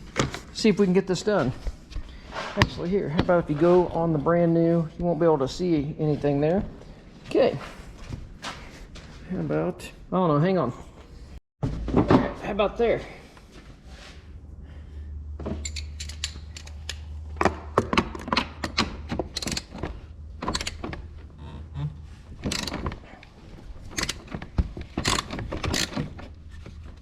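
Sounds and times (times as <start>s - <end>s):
hand tools and metal parts clattering: 15.4s - 21.2s, 22.2s - 27.0s.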